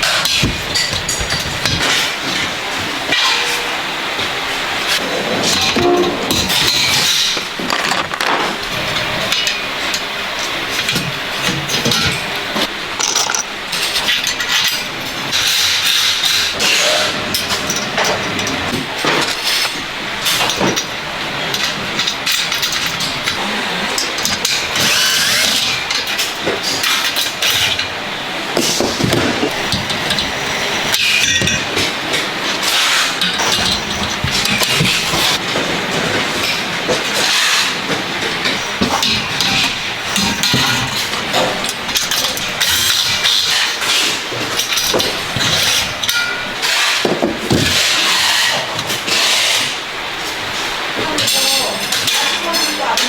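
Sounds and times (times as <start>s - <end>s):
metal clanks and knocks: 0.0s - 4.3s, 5.0s - 10.1s.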